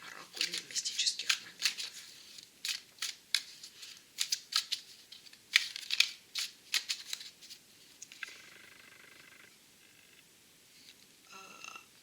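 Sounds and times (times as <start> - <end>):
cards snapping and sliding: 0.4 - 7.6.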